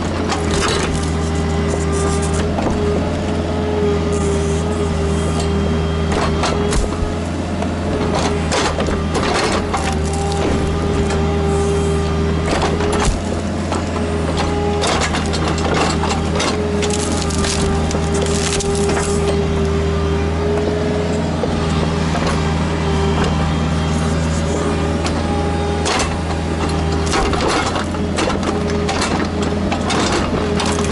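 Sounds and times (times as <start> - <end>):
hydraulics whining: 0.0 - 30.9
mini excavator running: 0.0 - 30.9
sharp cracks and knocks: 6.1 - 7.2, 12.5 - 19.3.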